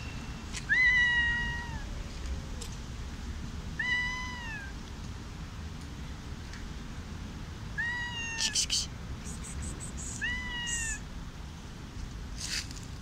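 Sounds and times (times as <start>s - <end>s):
cat meowing: 0.7s - 1.9s, 3.8s - 4.7s, 7.8s - 8.7s, 10.0s - 11.0s.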